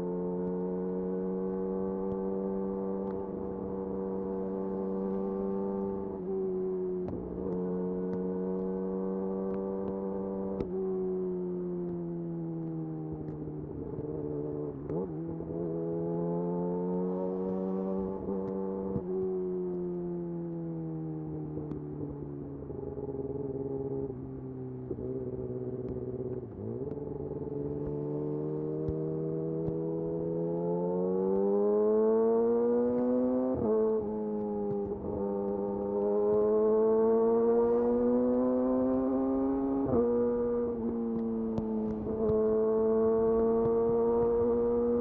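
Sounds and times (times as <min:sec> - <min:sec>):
motorcycle engine revving: 0:14.2 - 0:19.2, 0:24.9 - 0:45.0.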